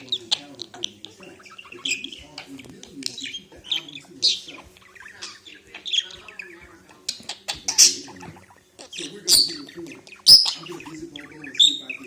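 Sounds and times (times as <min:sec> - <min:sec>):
parrot chirping and squeaking: 0:00.0 - 0:12.0.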